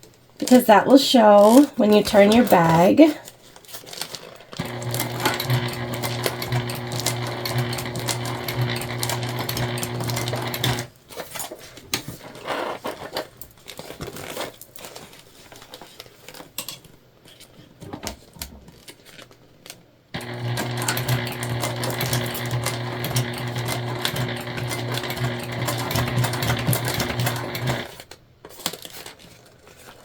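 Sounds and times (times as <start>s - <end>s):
scattered clicks and rustles: 1.3s - 30.0s
sewing machine stitching: 4.6s - 11.0s, 20.2s - 28.1s.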